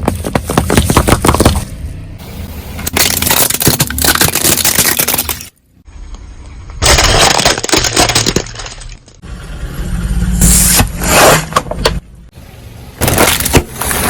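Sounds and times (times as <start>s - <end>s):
tyre crushing brittle objects: 0.0s - 1.7s, 2.8s - 5.6s, 6.8s - 9.2s, 13.0s - 14.0s
low engine rumble: 0.0s - 4.0s, 8.5s - 13.0s.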